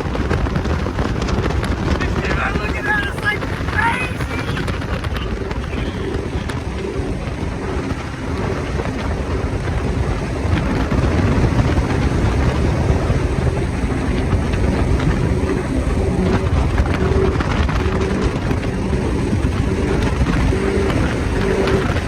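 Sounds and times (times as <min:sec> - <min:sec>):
speedboat engine: 0:00.0 - 0:22.0.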